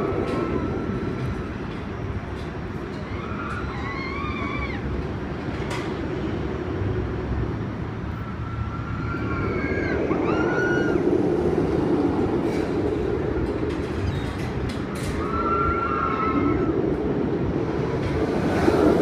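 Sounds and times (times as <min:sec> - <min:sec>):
ride car rumbling on track: 0:00.0 - 0:19.0.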